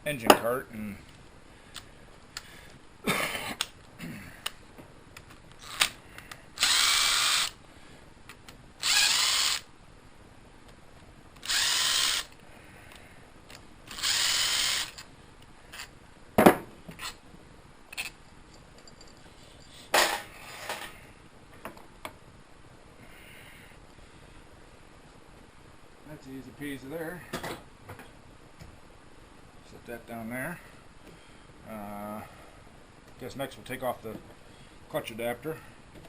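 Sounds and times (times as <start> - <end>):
impact wrench spinning bolts: 6.6 - 7.6, 8.8 - 9.7, 11.4 - 12.4, 13.9 - 15.1.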